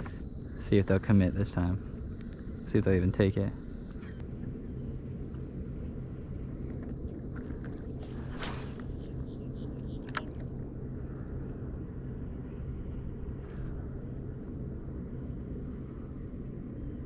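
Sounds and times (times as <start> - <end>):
steady low rumble: 0.0 - 17.0
sharp click: 10.0 - 10.4.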